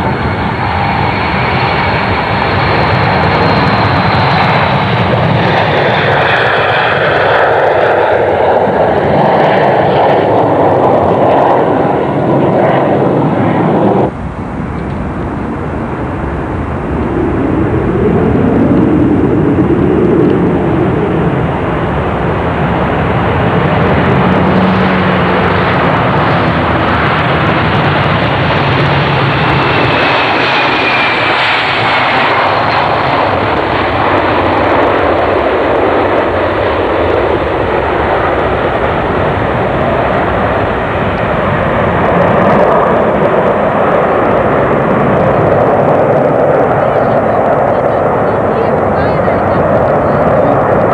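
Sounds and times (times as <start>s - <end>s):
jet engines roaring: 0.0s - 50.9s.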